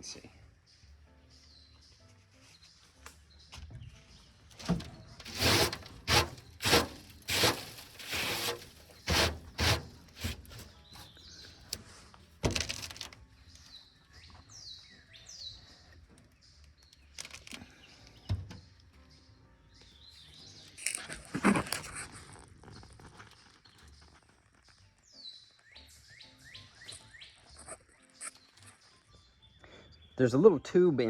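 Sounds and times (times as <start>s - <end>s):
small birds chirping: 0.0s - 31.0s
metal clanks and scrapes: 4.6s - 13.2s.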